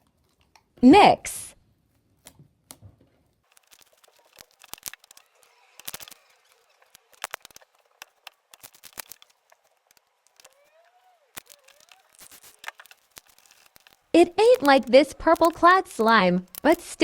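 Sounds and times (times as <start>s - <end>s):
sticky slime clicks and crackles: 3.5s - 10.6s, 11.3s - 17.0s.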